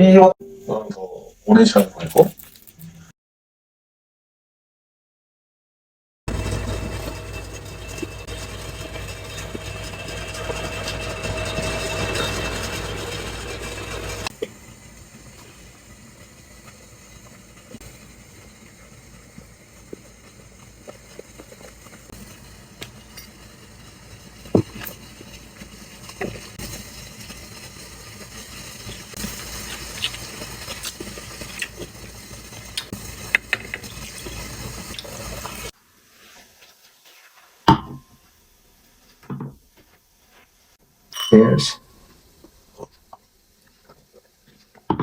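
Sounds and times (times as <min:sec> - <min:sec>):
running water: 0:28.8 - 0:35.7.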